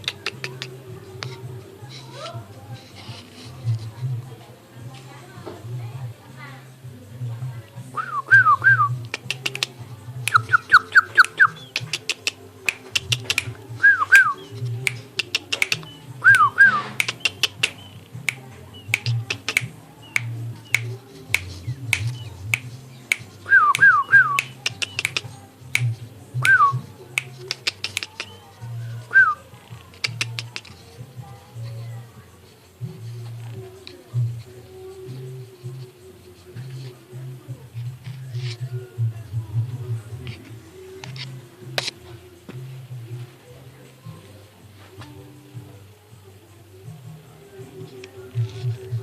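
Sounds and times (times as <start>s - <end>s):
sharp clicks: 9.1s - 28.4s.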